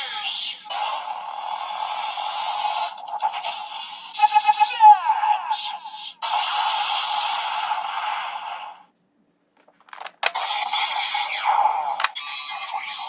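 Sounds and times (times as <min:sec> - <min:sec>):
toy sharp clicks: 0:09.6 - 0:10.4.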